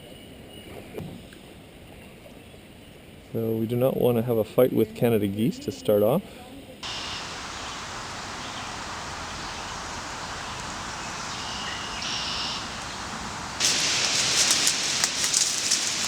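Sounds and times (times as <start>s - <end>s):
paddle splashing water: 6.8s - 16.0s
steady outdoor hiss: 6.8s - 16.0s.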